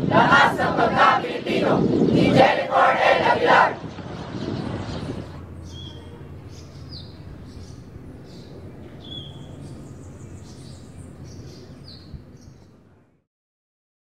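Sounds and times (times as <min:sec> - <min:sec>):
low outdoor hum: 0:00.0 - 0:13.2
small birds chirping: 0:04.4 - 0:12.8.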